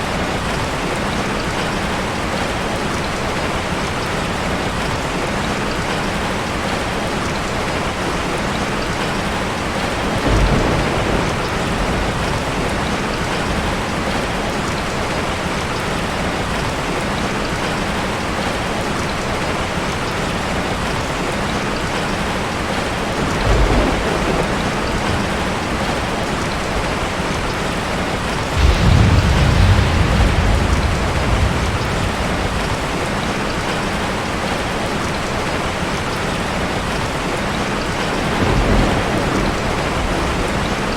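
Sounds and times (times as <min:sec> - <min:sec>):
heavy rain falling: 0:00.0 - 0:40.9
thunder rumbling: 0:09.0 - 0:14.9, 0:22.5 - 0:35.9, 0:37.4 - 0:40.9.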